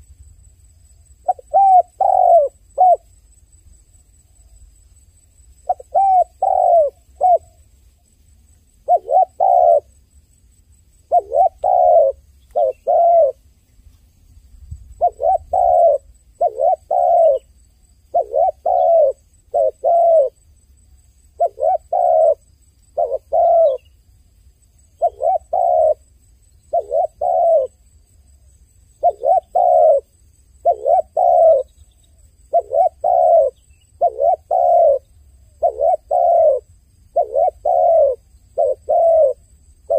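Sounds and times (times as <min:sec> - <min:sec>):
dove cooing: 0:01.2 - 0:03.1, 0:05.6 - 0:07.6, 0:08.8 - 0:09.9, 0:11.0 - 0:13.4, 0:14.9 - 0:20.4, 0:21.3 - 0:23.9, 0:25.0 - 0:27.8, 0:29.0 - 0:39.9.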